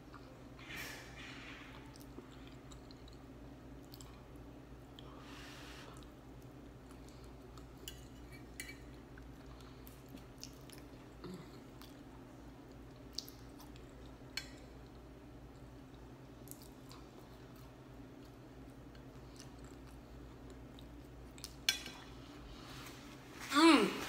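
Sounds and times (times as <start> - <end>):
person chewing with clicks: 1.7 - 5.1, 9.2 - 22.0.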